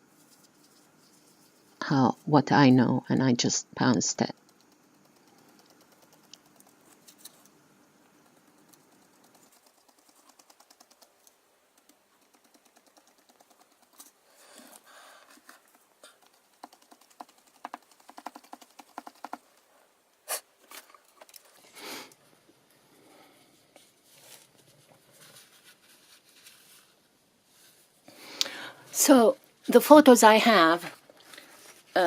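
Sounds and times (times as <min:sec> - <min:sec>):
paintbrush tapping on card: 0:16.6 - 0:19.4.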